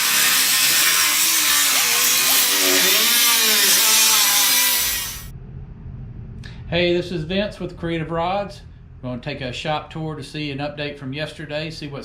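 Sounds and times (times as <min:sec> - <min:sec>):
power tool whining: 0:00.0 - 0:05.3.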